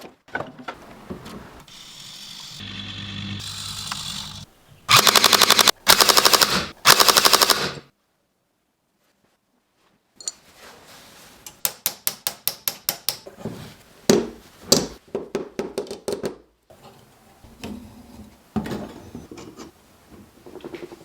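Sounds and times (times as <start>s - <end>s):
toy machine-gun fire: 3.4s - 7.9s
sharp clicks: 3.8s - 7.8s.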